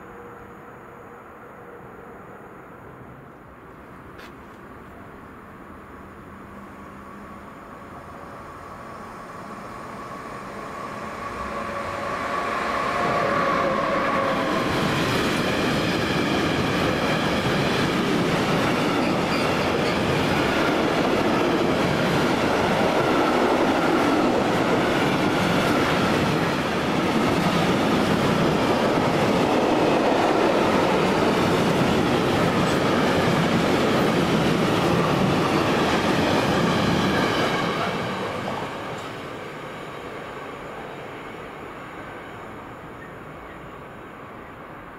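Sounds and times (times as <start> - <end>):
train whine: 0.0 - 44.9
train wheels clattering on rails: 14.4 - 39.4.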